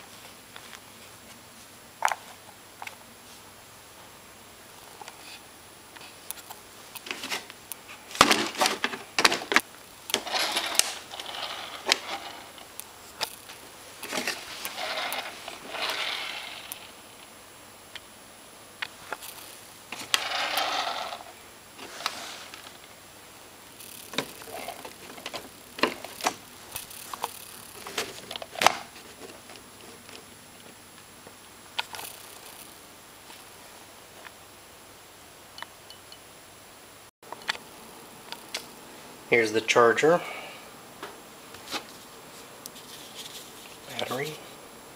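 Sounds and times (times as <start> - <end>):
rustling and scraping: 4.8 - 17.3, 18.8 - 23.0, 23.7 - 33.5, 41.0 - 44.6
plastic parts clicking and knocking: 8.1 - 12.3, 23.8 - 30.2.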